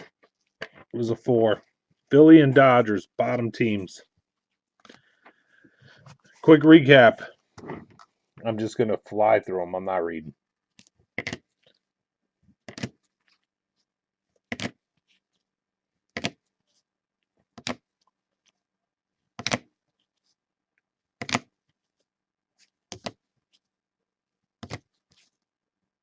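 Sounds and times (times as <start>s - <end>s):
cards slapping and rustling: 10.8s - 11.8s, 12.6s - 13.4s, 14.4s - 14.8s, 16.2s - 16.5s, 17.5s - 17.9s, 19.4s - 19.8s, 21.2s - 21.6s, 22.6s - 23.7s, 24.6s - 25.4s.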